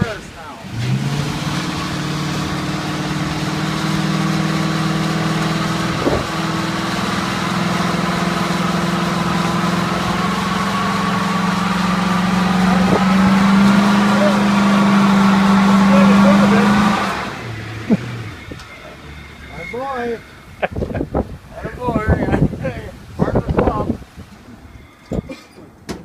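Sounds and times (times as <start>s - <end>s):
truck engine running: 0.0s - 24.8s
thin high whine: 5.0s - 22.1s, 24.5s - 25.6s.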